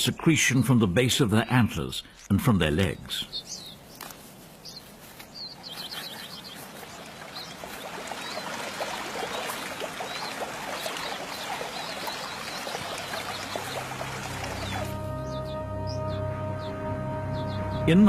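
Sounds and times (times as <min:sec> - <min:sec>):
running water: 0:05.6 - 0:15.1.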